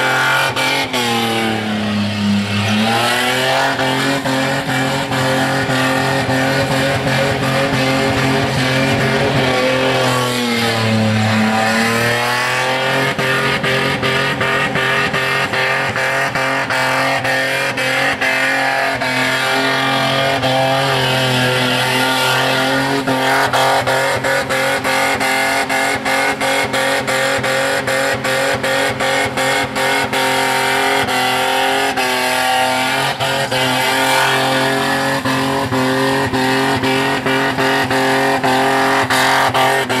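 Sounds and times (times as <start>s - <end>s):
car engine at high revs: 0.0s - 40.0s.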